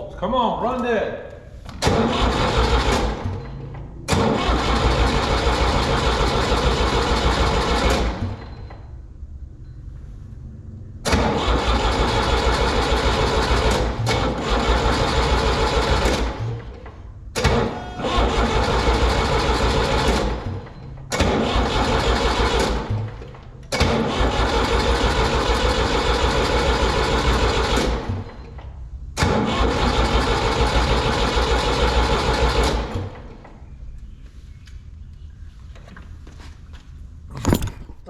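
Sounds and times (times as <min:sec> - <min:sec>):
engine starter cranking: 0:01.8 - 0:08.6, 0:11.1 - 0:28.4, 0:29.2 - 0:31.1, 0:37.3 - 0:38.0.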